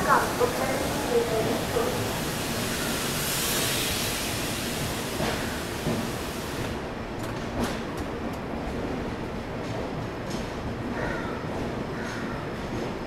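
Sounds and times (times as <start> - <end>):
train rumbling along track: 0.0 - 13.0
hiss: 0.2 - 6.8.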